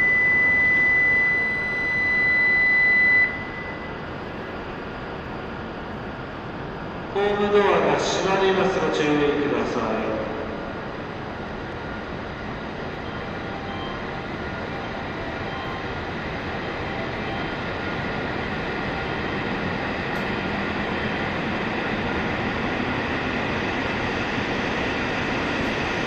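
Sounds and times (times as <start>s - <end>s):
train accelerating: 0.0s - 26.0s.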